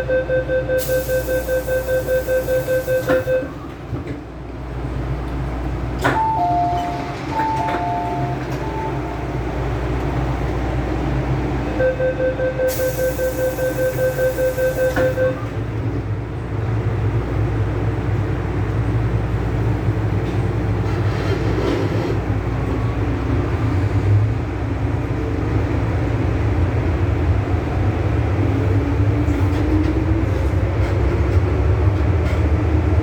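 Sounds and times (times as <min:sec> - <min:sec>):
door-closing warning beeps: 0:00.0 - 0:03.8, 0:06.0 - 0:09.3, 0:11.8 - 0:15.6
hiss of air from doors: 0:00.8 - 0:02.8, 0:12.7 - 0:14.9
train running noise: 0:00.8 - 0:11.8, 0:12.7 - 0:33.0
two-tone door chime: 0:06.1 - 0:09.2.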